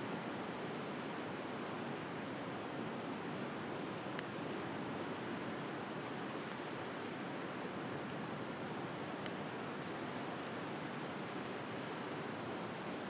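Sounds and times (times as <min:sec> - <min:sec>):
wood fire crackling: 0:10.4 - 0:13.0.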